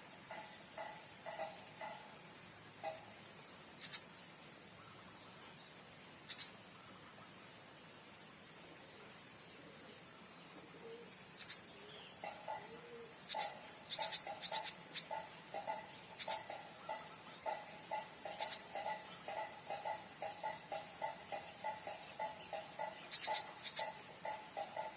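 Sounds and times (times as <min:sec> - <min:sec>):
insect drone: 0:00.0 - 0:24.9
bird shrill chirps: 0:03.8 - 0:04.1, 0:06.3 - 0:06.6, 0:11.4 - 0:11.7, 0:13.3 - 0:15.2, 0:16.1 - 0:17.2, 0:18.4 - 0:18.8, 0:23.1 - 0:24.0.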